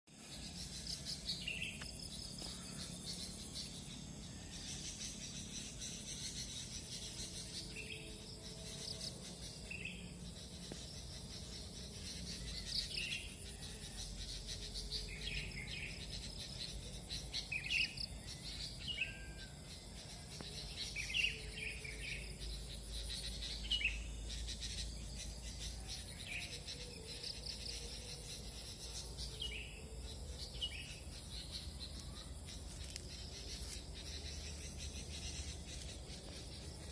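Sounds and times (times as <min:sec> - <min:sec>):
high-pitched insect drone: 0:00.3 - 0:36.9
bulbuls chirping: 0:20.0 - 0:36.9.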